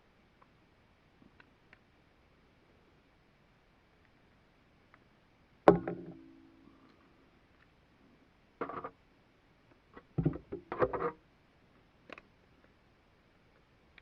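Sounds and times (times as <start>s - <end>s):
clattering knocks on workbench: 5.7s - 6.2s
sharp ringing knock: 5.7s - 6.6s.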